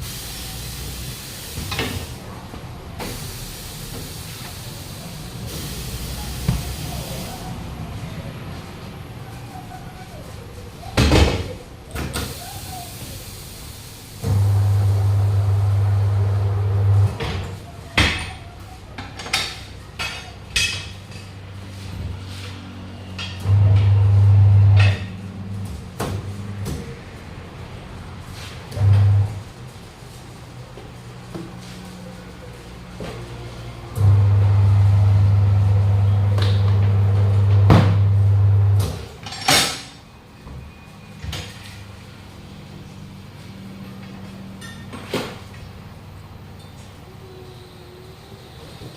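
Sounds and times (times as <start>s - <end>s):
electric machine hum: 14.2s - 17.2s, 23.4s - 26.6s, 28.7s - 29.4s, 34.0s - 39.0s.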